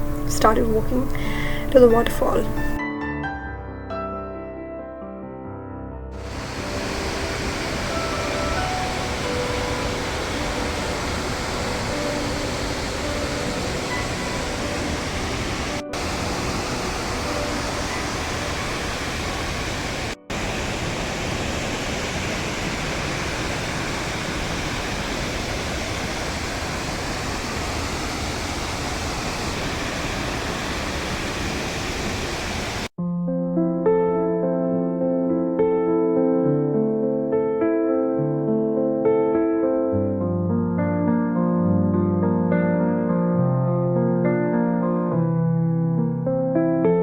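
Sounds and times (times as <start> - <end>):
waterfall rushing: 0.0 - 2.8, 6.2 - 32.9
piano music: 0.0 - 20.5, 33.0 - 47.0.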